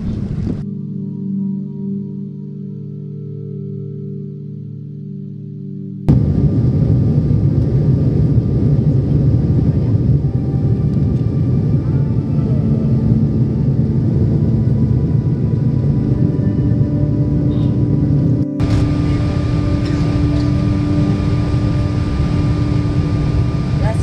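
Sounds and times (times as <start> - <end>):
music: 0.0 - 6.1, 8.1 - 24.0
loud engine drone: 6.1 - 24.0.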